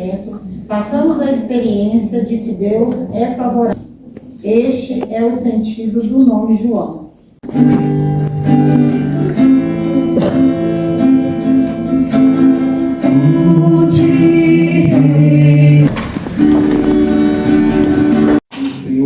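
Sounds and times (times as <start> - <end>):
acoustic guitar: 7.4 - 19.0
person singing church music: 7.4 - 19.0.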